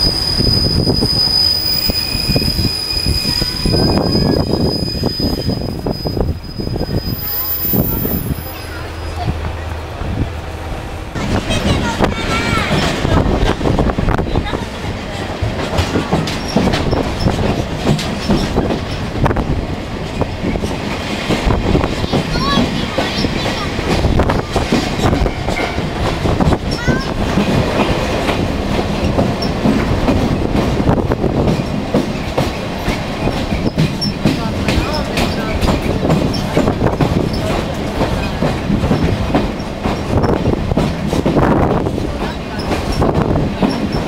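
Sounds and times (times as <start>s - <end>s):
wheels squealing: 0.0s - 9.7s
railway wheels rumbling on rails: 0.0s - 44.0s.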